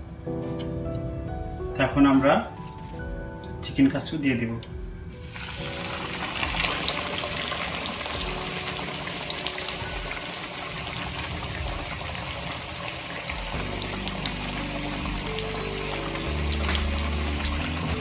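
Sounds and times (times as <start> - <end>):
chicken deep-frying in oil: 5.2 - 18.0
oil popping and crackling: 5.2 - 18.0.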